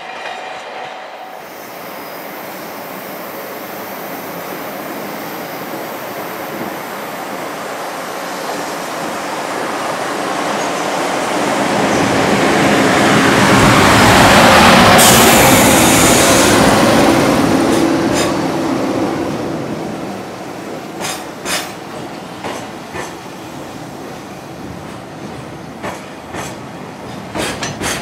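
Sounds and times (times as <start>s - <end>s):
freight train rolling: 0.0s - 28.0s.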